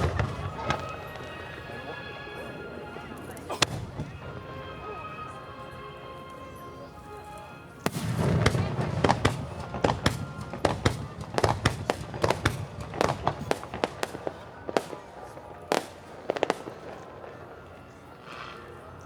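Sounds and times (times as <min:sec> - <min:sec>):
fireworks bursting: 0:00.0 - 0:01.7, 0:03.5 - 0:04.5, 0:07.8 - 0:18.1.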